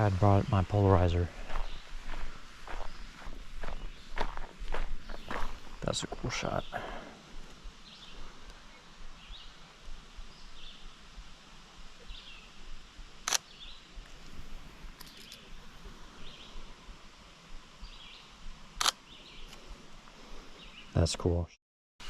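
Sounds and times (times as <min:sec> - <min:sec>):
small bird chirping: 0:01.5 - 0:06.8, 0:15.0 - 0:15.6
camera shutter clicks: 0:13.2 - 0:13.5, 0:18.8 - 0:19.0.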